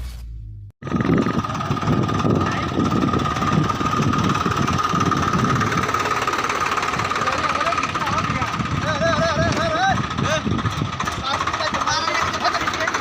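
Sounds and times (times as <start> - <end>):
tractor diesel engines chugging: 0.8 - 13.0.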